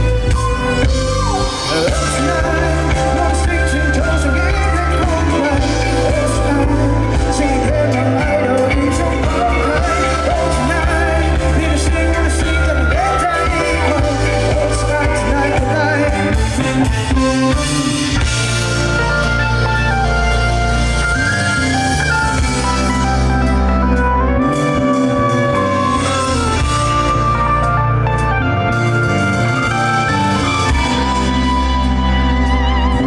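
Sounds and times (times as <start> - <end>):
person singing: 0.0 - 19.3
live pop band playing: 0.0 - 33.0
steady bass: 0.0 - 33.0.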